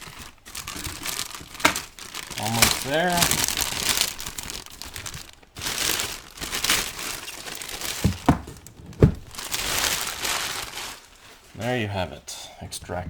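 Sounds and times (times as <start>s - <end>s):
plastic wrap crinkling: 0.0s - 11.7s.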